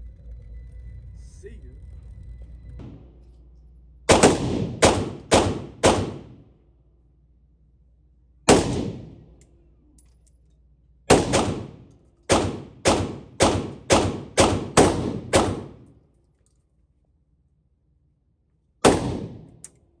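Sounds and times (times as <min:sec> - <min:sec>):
semi-automatic gunshots: 0:04.1 - 0:06.5, 0:08.5 - 0:09.3, 0:11.1 - 0:15.9, 0:18.8 - 0:19.6.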